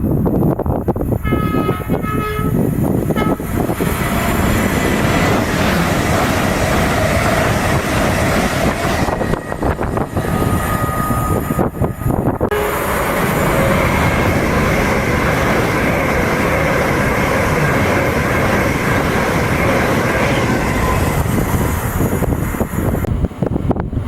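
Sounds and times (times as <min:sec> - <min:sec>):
train wheels rushing on rails: 0:00.0 - 0:24.0.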